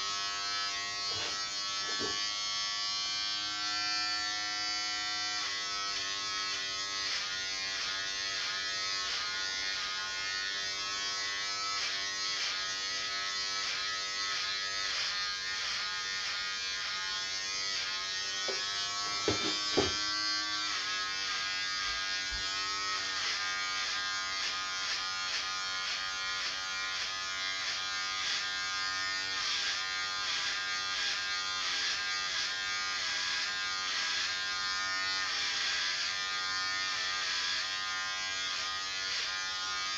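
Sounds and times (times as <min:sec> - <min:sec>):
electric hair clippers buzzing: 0:00.0 - 0:39.9
brief knocks: 0:18.5 - 0:20.0.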